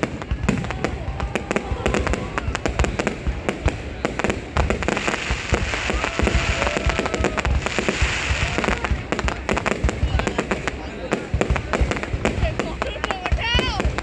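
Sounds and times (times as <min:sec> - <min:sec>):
fireworks bangs and pops: 0:00.0 - 0:14.0
fireworks hissing crackle: 0:00.0 - 0:14.0.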